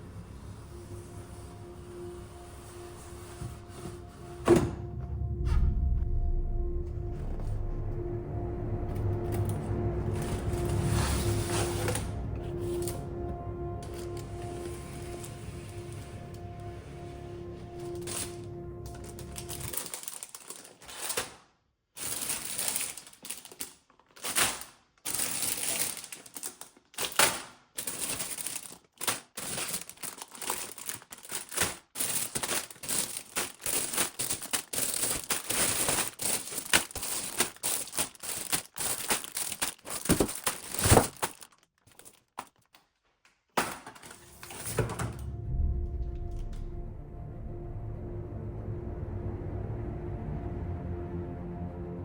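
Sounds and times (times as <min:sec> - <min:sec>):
packaging crinkling and rustling: 0:17.9 - 0:21.4, 0:22.0 - 0:45.1.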